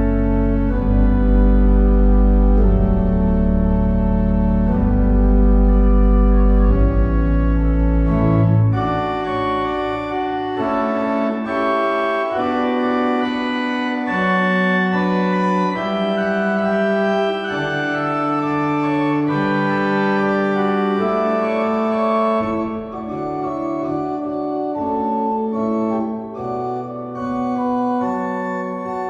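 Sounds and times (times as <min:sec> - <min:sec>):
deep organ pedal notes: 0:00.0 - 0:29.0
organ playing sustained chords: 0:00.0 - 0:29.0.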